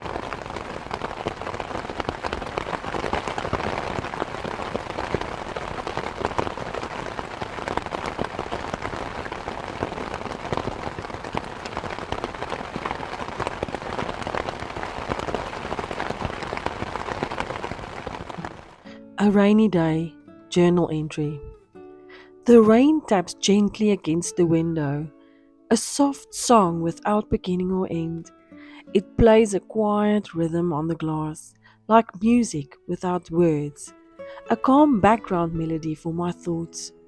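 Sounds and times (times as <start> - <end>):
steady rain patter: 0.0 - 20.1.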